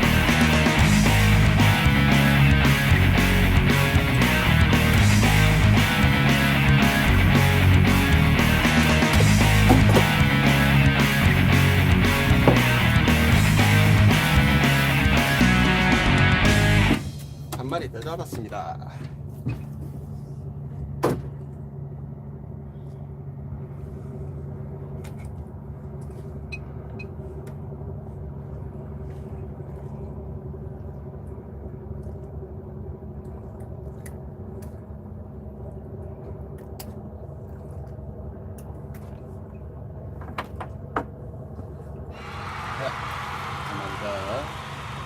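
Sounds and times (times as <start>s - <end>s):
boat engine idling: 0.0s - 45.0s
sharp knock: 12.4s - 12.8s.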